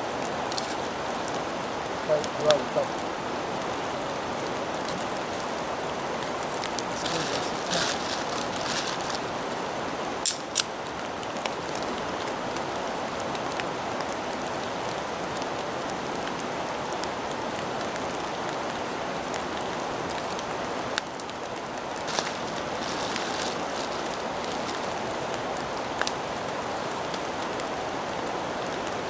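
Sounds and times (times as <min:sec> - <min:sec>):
steady rain falling: 0:00.0 - 0:29.0
ferrocerium rod scrapes: 0:06.3 - 0:09.4, 0:22.1 - 0:25.1.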